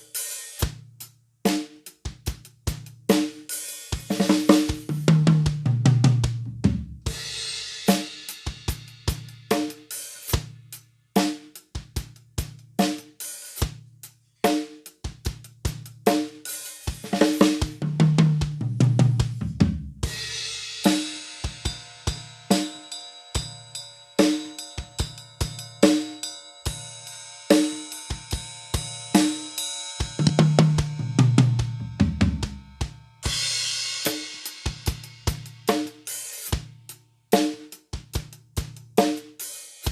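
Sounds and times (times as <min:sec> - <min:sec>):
drum kit groove: 0:00.0 - 0:39.9
cymbal ringing: 0:20.1 - 0:36.3.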